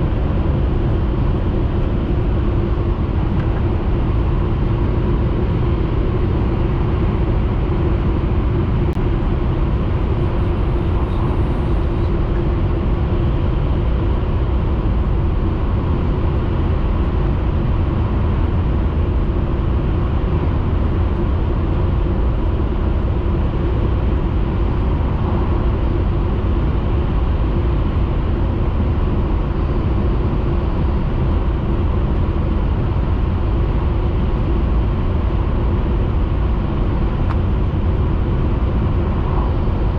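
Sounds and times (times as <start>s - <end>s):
train running noise: 0.0s - 39.9s.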